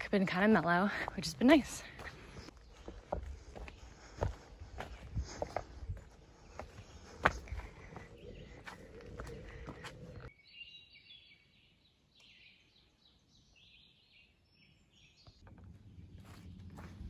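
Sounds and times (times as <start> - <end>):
footsteps on trail: 0.0 - 10.3, 15.4 - 17.0
faint birdsong: 0.0 - 17.0.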